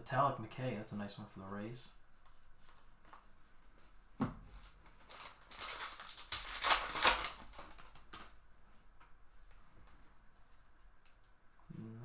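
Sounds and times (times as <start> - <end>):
card packaging rustling: 4.6 - 8.4.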